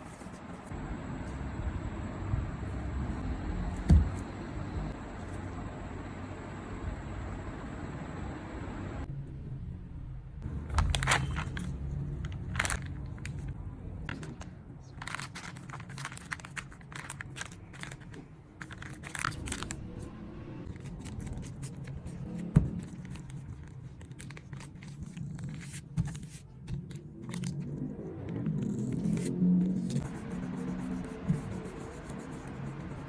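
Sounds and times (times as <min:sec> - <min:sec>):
crinkles and rustles: 0:10.7 - 0:19.8, 0:20.8 - 0:27.7.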